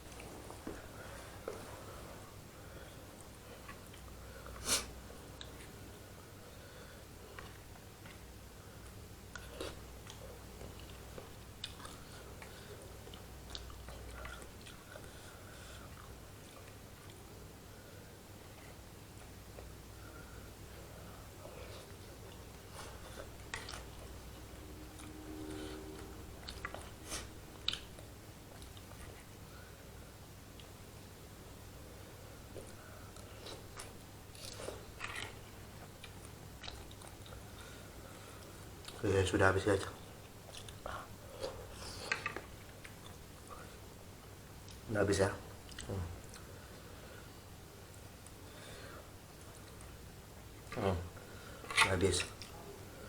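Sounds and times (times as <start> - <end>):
person chewing noodles: 7.1 - 31.1, 31.8 - 39.0, 40.0 - 44.9.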